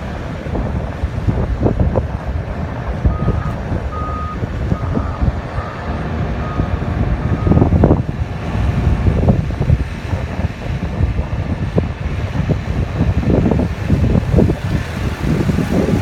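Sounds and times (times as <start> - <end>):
diesel engine rumble: 0.0 - 16.0
reversing alarm beeping: 3.1 - 7.8.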